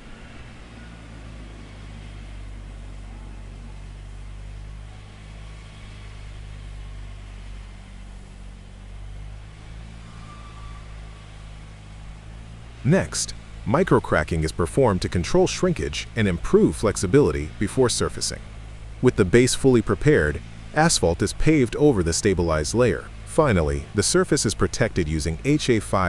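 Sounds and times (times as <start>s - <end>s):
heavy equipment engine humming: 0.0s - 26.0s.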